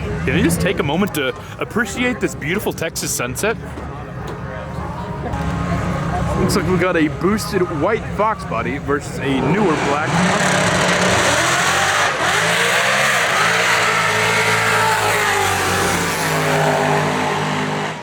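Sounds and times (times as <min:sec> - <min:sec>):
drag car engines at high revs: 0:09.0 - 0:18.0.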